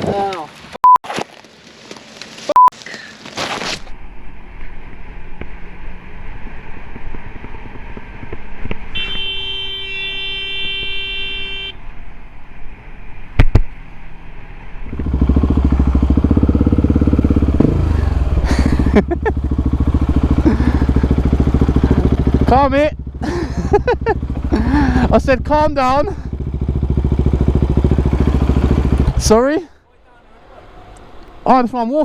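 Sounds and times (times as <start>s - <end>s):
street traffic: 0.0s - 32.0s
short beep: 2.5s - 2.7s
vehicle horn: 8.9s - 11.8s
motorcycle engine: 13.5s - 29.6s.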